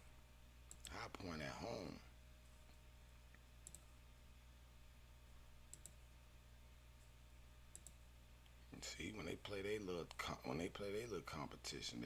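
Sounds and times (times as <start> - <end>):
low steady hum: 0.0 - 12.0
computer mouse clicks: 3.3 - 3.9, 5.7 - 6.0, 7.7 - 8.0.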